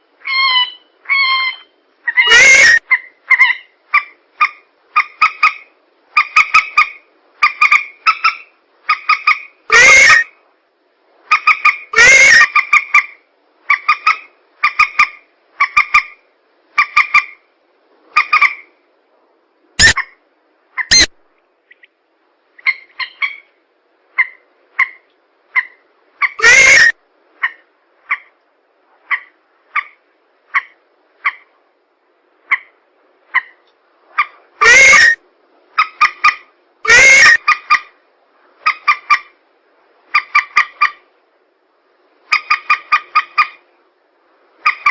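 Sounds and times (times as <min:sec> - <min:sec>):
recorded swamp bird calls: 0:00.2 - 0:10.3, 0:19.8 - 0:21.1, 0:22.6 - 0:28.3, 0:33.3 - 0:35.2, 0:35.8 - 0:37.9
loud harsh distorted calls: 0:00.3 - 0:02.8, 0:09.7 - 0:10.3, 0:11.9 - 0:12.5, 0:19.8 - 0:20.0, 0:20.9 - 0:21.1, 0:26.4 - 0:27.0, 0:34.6 - 0:35.2, 0:36.9 - 0:37.4.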